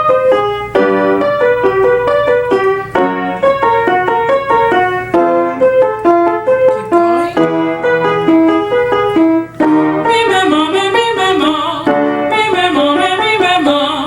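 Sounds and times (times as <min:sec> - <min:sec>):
piano warm-up pattern: 0:00.0 - 0:14.0
person singing vocal exercise: 0:10.1 - 0:14.0.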